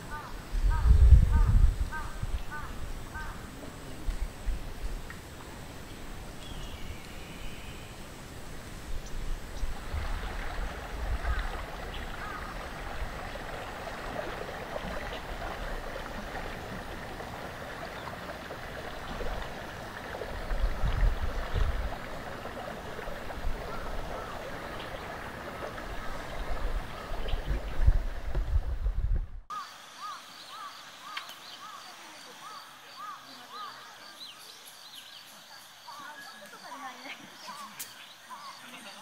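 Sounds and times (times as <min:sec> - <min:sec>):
wind rumble on microphone: 0:00.4 - 0:03.2, 0:08.3 - 0:29.5
water gurgling and trickling: 0:08.9 - 0:29.5.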